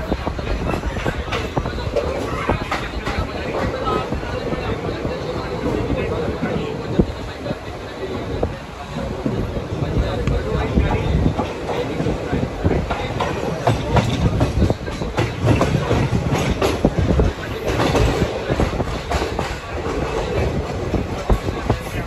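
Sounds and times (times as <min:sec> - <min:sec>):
wheels clacking over rail joints: 0:00.0 - 0:04.8
train wheels rumbling on rail: 0:00.0 - 0:22.0.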